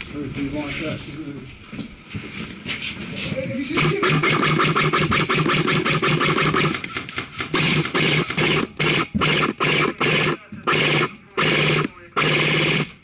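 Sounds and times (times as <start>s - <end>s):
airsoft rifle rattling shots: 3.8s - 13.0s
gearbox motor whirring: 7.6s - 13.0s.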